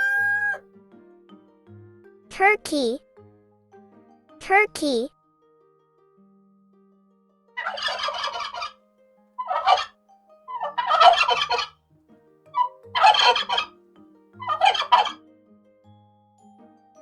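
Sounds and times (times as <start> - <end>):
turkey gobbling: 0.0 - 0.6, 7.6 - 8.7, 9.4 - 9.9, 10.5 - 11.7, 12.6 - 13.7, 14.4 - 15.2.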